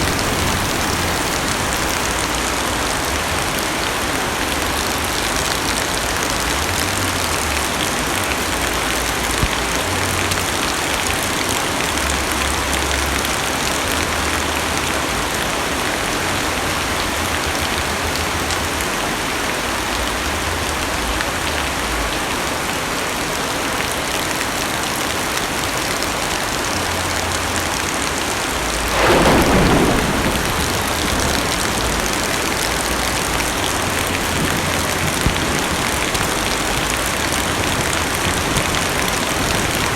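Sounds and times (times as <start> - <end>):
heavy rain on car roof: 0.0 - 39.9
thunder clap and rumble: 28.7 - 39.9.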